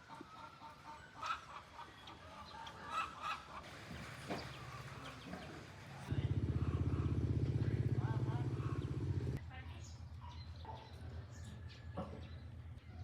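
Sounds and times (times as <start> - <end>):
chickens clucking: 0.0 - 3.7
pulsing engine: 6.0 - 9.4.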